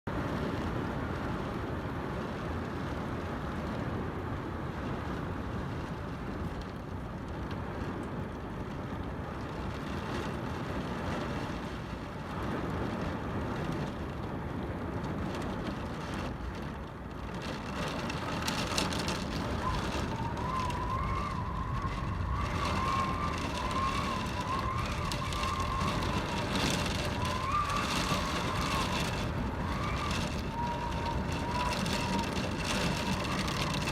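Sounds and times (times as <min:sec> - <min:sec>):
heavy rain: 0:00.1 - 0:33.9
wavering whistle-like tone: 0:19.5 - 0:33.9.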